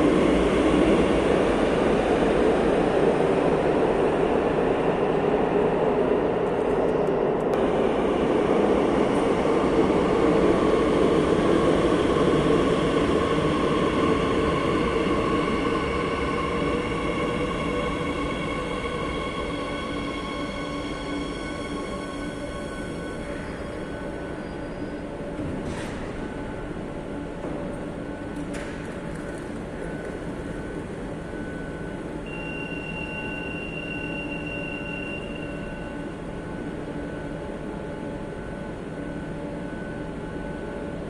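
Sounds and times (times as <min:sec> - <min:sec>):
train rumbling: 0:00.0 - 0:32.3
train whine: 0:00.0 - 0:41.0.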